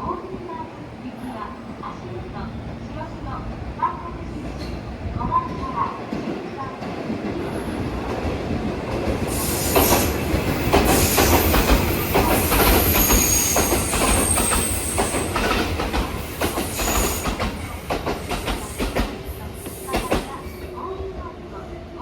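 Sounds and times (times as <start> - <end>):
train wheels clattering: 8.0 - 20.5.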